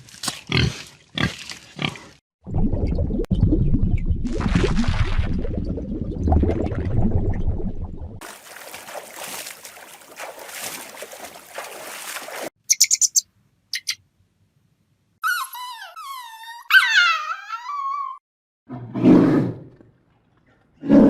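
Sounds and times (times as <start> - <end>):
high chirps: 12.7 - 14.0.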